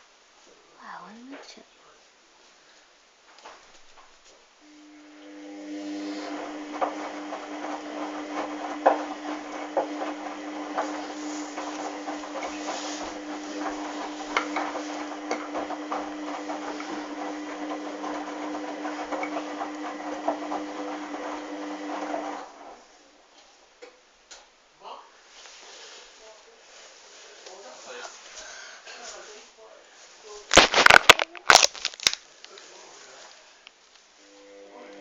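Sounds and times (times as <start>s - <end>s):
washing machine humming: 4.7s - 23.0s, 34.3s - 35.0s
clicking and knocking: 6.7s - 20.8s.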